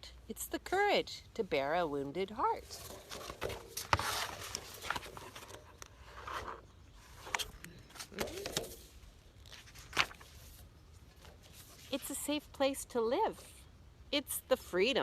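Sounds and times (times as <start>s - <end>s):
paper pages rustling: 2.6s - 12.2s.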